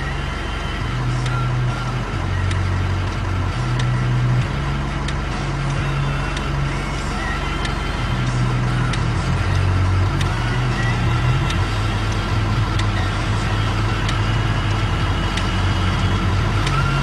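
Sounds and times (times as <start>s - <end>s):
diesel locomotive engine drone: 0.0s - 17.0s
sharp clicks: 1.1s - 1.5s, 2.3s - 4.0s, 5.0s - 13.1s, 13.8s - 17.0s.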